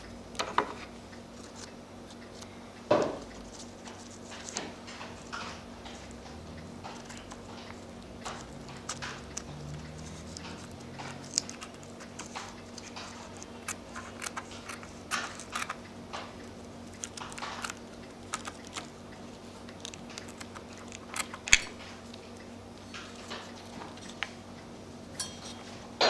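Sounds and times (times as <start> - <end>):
small clicks and taps: 1.4 - 24.4
paper rustling: 3.4 - 15.8.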